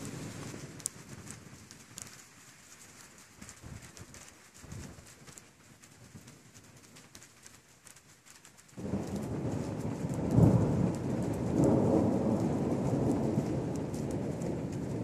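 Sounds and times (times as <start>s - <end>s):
thunder rumbling: 0.0s - 1.7s, 8.8s - 15.0s
raindrops ticking: 0.0s - 15.0s.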